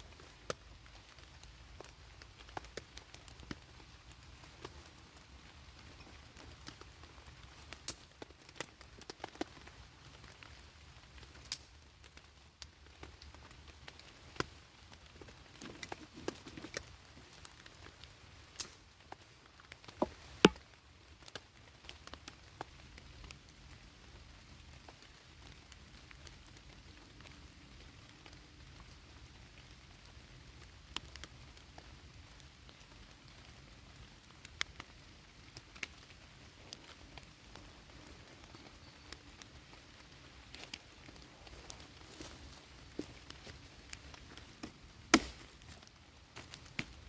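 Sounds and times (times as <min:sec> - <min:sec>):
rain drops pattering: 0:00.0 - 0:47.0.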